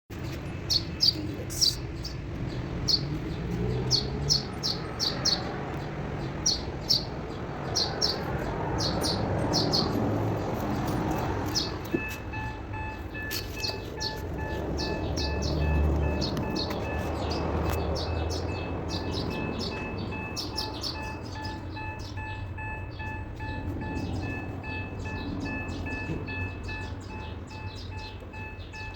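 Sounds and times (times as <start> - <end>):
small bird chirping: 0.2 - 10.0, 10.8 - 28.9
faint pulsing beep: 11.9 - 17.1, 19.0 - 28.9.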